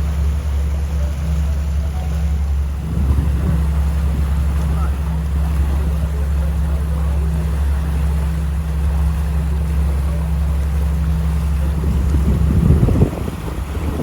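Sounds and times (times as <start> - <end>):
boat engine humming: 0.0 - 14.0
water noise: 0.0 - 14.0
wind noise: 2.6 - 4.6, 11.6 - 14.0.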